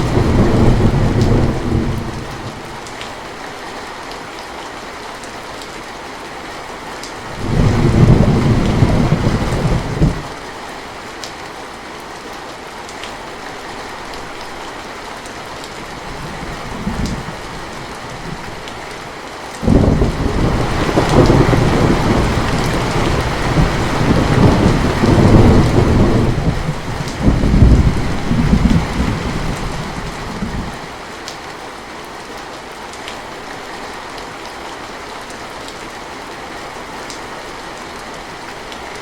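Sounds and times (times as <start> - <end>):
thunder rumbling: 0.0 - 2.5, 7.3 - 10.4, 16.1 - 18.9, 19.6 - 30.8
steady rain: 0.0 - 39.0.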